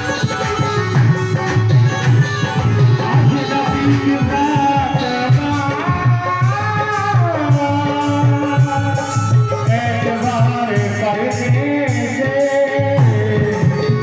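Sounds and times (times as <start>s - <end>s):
hand drum beat: 0.0s - 7.3s
person singing devotional melody: 0.0s - 14.0s.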